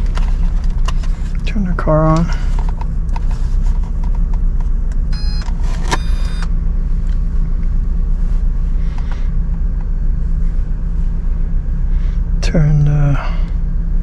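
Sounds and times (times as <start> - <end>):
low rumble: 0.0 - 14.0
short electronic beeps: 5.2 - 6.5.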